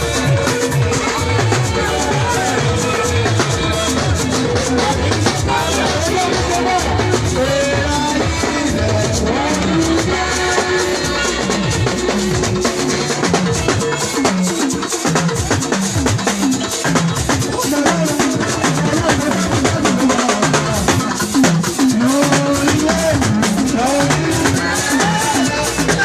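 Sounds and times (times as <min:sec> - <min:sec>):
low bass line: 0:00.0 - 0:13.8
drum kit playing fast groove: 0:00.0 - 0:26.0.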